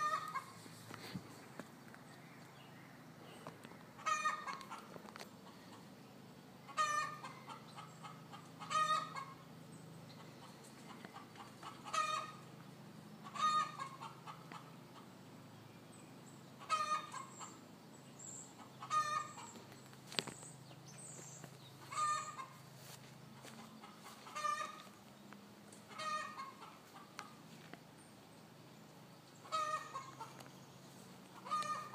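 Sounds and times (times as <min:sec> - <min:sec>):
chickens clucking: 0:00.0 - 0:02.5, 0:03.4 - 0:15.5, 0:16.2 - 0:31.9.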